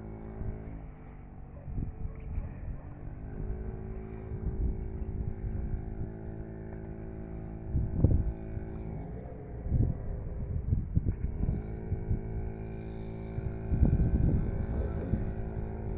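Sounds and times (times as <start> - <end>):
small two-stroke engine running: 0.0 - 15.9
wind buffeting microphone: 9.6 - 15.9.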